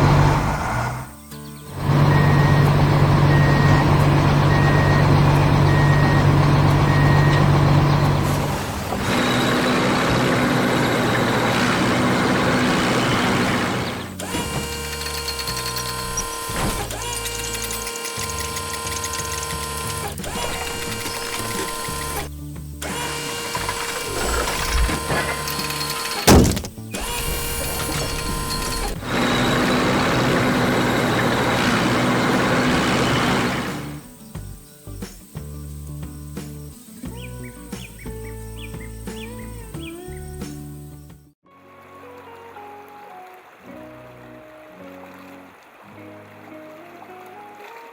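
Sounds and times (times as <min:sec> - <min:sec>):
hissing machine noise: 0:00.0 - 0:40.2
mechanical whirring: 0:01.7 - 0:34.2
rapid ratchet-like clicking: 0:14.1 - 0:29.0
loud thump: 0:26.3 - 0:28.5.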